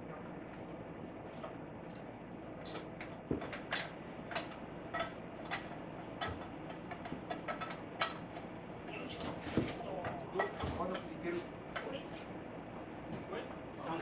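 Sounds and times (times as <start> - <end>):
hand tools clinking on metal parts: 2.7 - 2.9.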